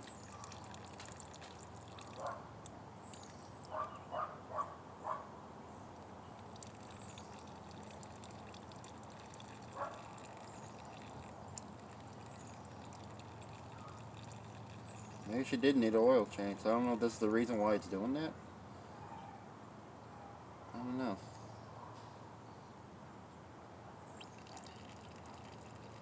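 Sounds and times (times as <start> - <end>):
oil trickling into a pan: 0.0 - 2.3, 3.0 - 3.7, 5.9 - 17.2, 24.2 - 26.0.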